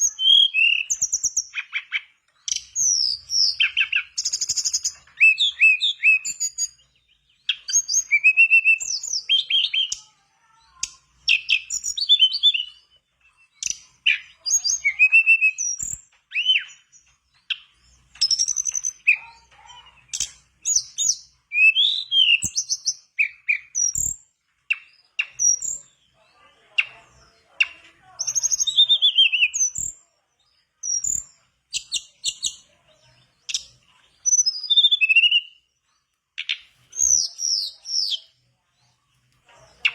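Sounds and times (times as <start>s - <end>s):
bird chirping and whistling: 0.0s - 10.0s, 11.3s - 16.9s, 17.5s - 19.4s, 20.0s - 25.8s, 28.2s - 30.0s, 33.5s - 35.6s, 36.4s - 38.3s.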